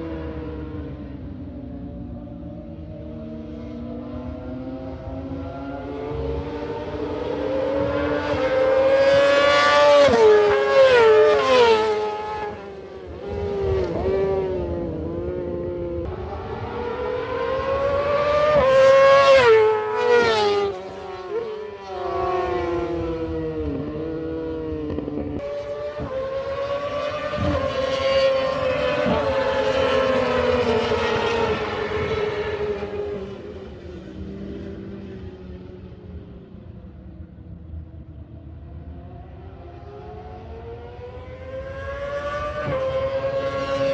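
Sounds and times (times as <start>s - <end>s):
racing motorcycles accelerating: 0.0s - 43.9s.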